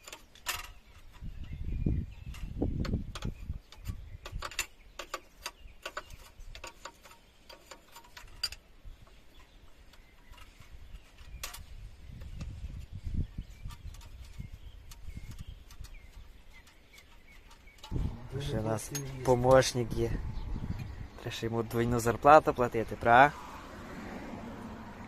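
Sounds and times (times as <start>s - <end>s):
low rumble on microphone: 1.1s - 4.2s, 17.8s - 22.2s
spanner clicking on metal: 2.2s - 8.6s.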